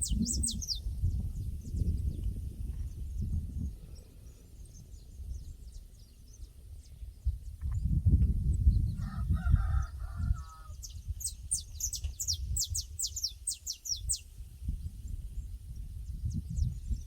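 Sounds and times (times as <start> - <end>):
rooster crowing: 9.0 - 10.8.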